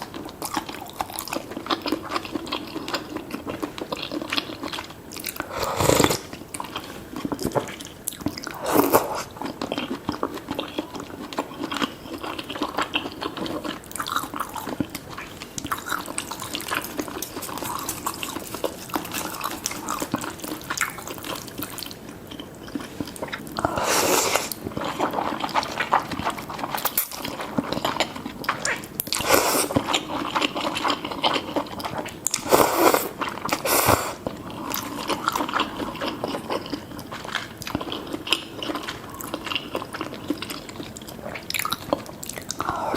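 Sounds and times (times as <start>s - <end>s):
wet chewing: 0.0s - 42.9s
slurping soup: 5.3s - 6.4s, 8.4s - 9.4s, 23.6s - 26.0s, 28.7s - 30.0s, 32.4s - 34.2s.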